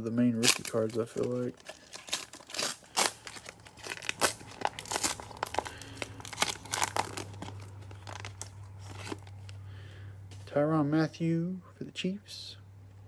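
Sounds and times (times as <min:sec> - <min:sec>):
plastic wrapper crinkling and tearing: 0:00.3 - 0:09.6.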